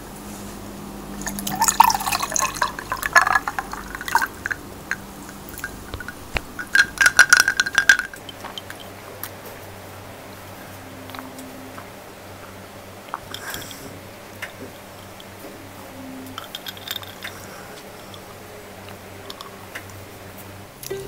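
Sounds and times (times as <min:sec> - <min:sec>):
drink glugging into glass: 0:01.2 - 0:08.9
ice cubes clinking against glass: 0:01.2 - 0:08.9, 0:16.4 - 0:18.2.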